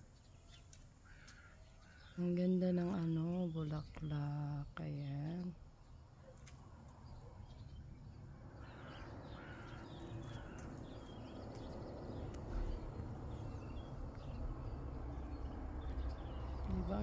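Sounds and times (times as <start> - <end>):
birds chirping and calling: 0.0 - 17.0
low rumble: 9.8 - 17.0.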